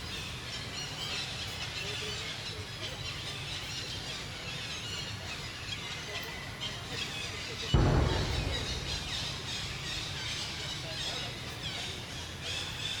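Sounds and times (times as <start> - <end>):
low background hum: 7.8 - 10.8.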